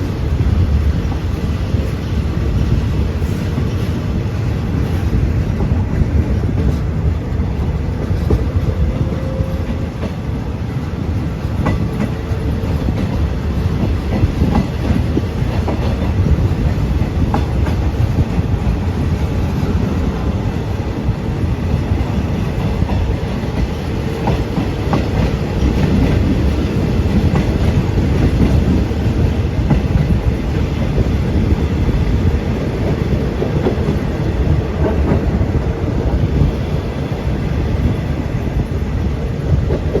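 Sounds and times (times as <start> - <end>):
train rumbling: 0.0 - 40.0
wheels clicking over rail joints: 6.5 - 20.5.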